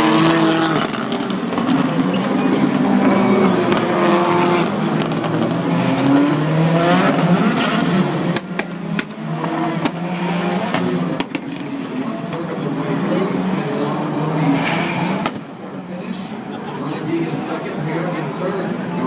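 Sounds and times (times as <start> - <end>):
race car engines revving: 0.0 - 19.0.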